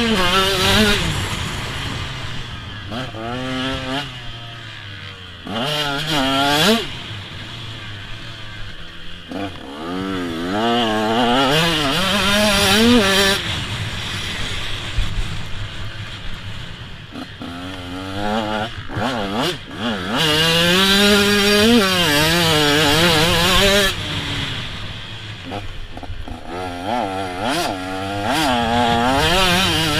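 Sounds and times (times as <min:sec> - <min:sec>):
motocross bike revving hard: 0:00.0 - 0:29.9.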